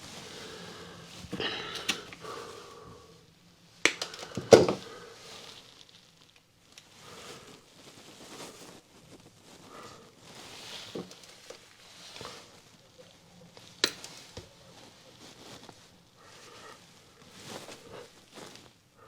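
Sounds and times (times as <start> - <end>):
quiet shuffling: 0.0 - 19.0
clicks and rustling of tools: 1.7 - 2.2, 3.8 - 4.8.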